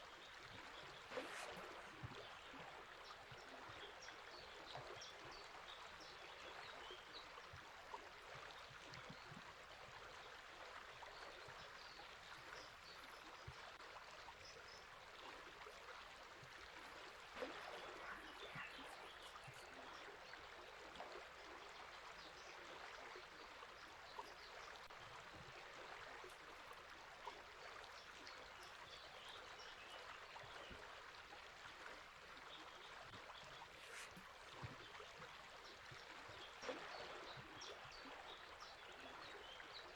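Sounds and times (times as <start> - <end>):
river water flowing: 12.2 - 39.9.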